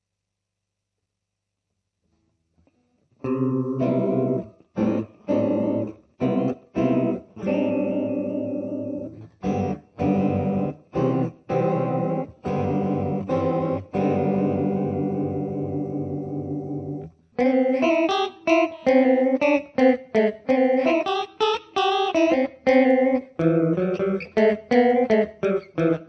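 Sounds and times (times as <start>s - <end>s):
electric guitar chord stabs: 3.2s - 26.0s.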